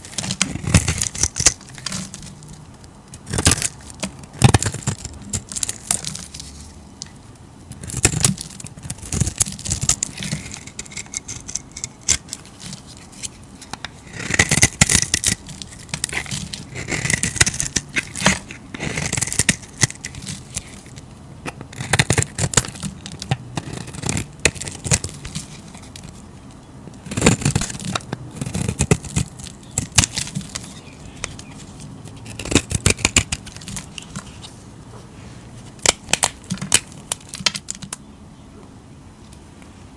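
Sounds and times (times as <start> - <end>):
blade scraping through soap: 14.0 - 20.9, 21.8 - 26.2, 27.0 - 34.5.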